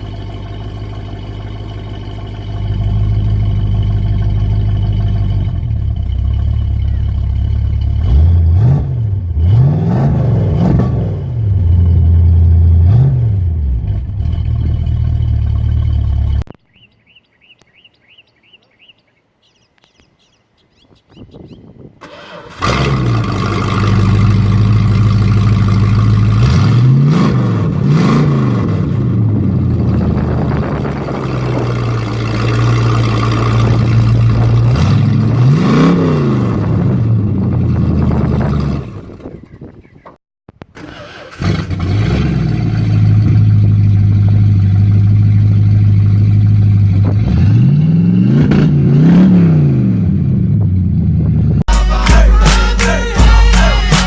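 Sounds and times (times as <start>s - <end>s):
car engine idling and revving: 0.0s - 16.6s, 22.0s - 54.0s
birds chirping faintly: 16.5s - 21.9s.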